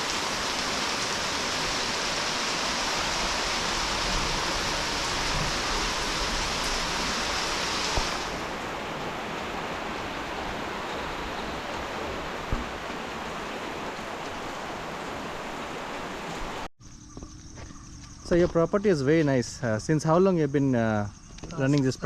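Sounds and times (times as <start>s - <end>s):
rain falling: 0.0s - 16.7s.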